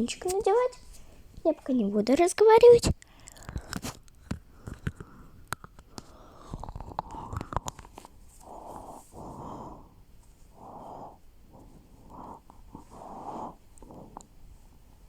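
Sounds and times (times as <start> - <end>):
breathing close to microphone: 3.0 - 15.0.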